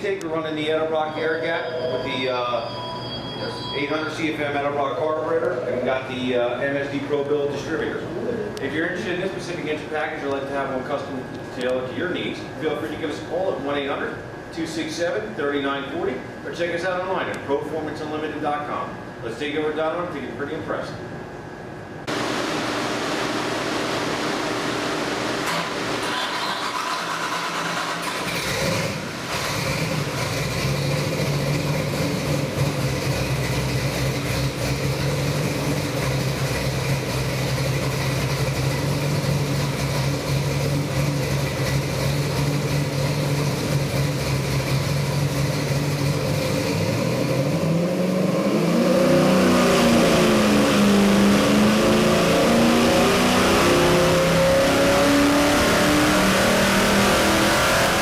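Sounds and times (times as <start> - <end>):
car engine idling and revving: 22.1 - 58.0.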